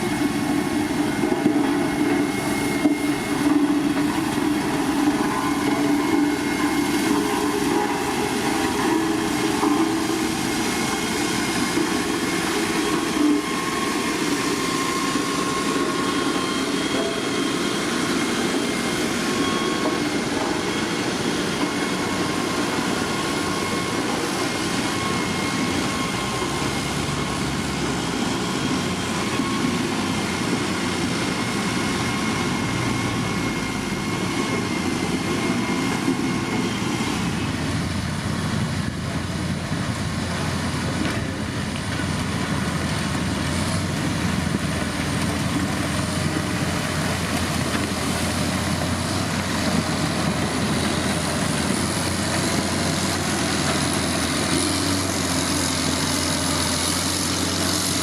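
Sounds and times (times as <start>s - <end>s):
diesel engine running: 0.0s - 58.0s
thin high whine: 0.4s - 38.1s.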